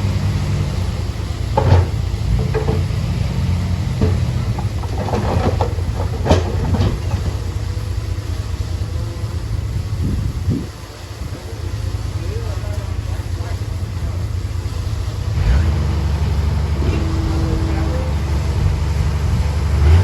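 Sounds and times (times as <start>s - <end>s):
bulldozer diesel engine running: 0.0s - 20.0s
clanks and rattles on stone: 1.6s - 3.1s, 4.0s - 7.5s.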